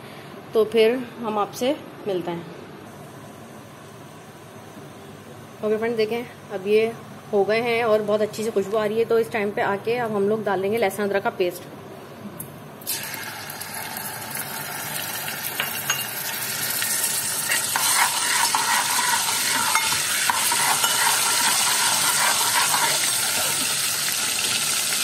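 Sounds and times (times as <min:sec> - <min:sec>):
paste sizzling in hot oil: 0:12.9 - 0:25.0
ladle scraping a pot: 0:17.5 - 0:23.6.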